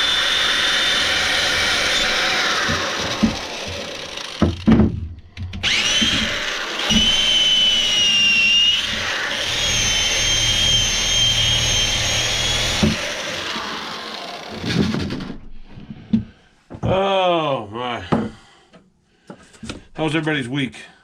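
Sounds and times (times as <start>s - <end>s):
power tool motor whining: 0.0s - 4.8s, 5.4s - 15.4s.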